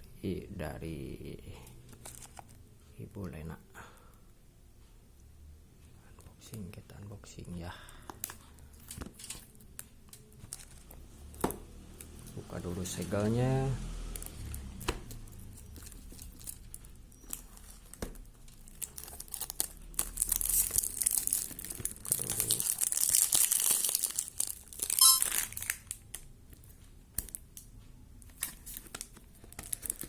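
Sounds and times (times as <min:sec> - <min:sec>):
packaging rustling and clicking: 0:01.9 - 0:02.6, 0:08.1 - 0:11.0, 0:14.1 - 0:27.4, 0:28.2 - 0:30.0
packaging tearing: 0:18.6 - 0:26.0, 0:28.4 - 0:30.0.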